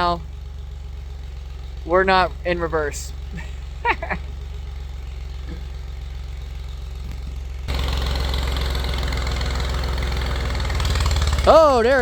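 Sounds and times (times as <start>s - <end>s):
tractor engine idling and revving: 0.0s - 12.0s.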